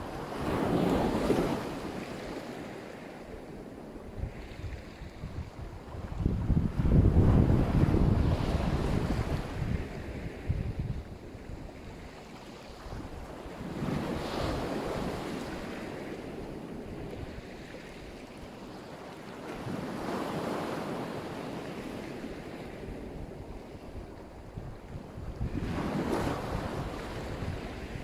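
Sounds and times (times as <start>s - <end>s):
waves washing onto shore: 0.0s - 28.0s
wind buffeting microphone: 3.3s - 18.3s, 21.7s - 28.0s.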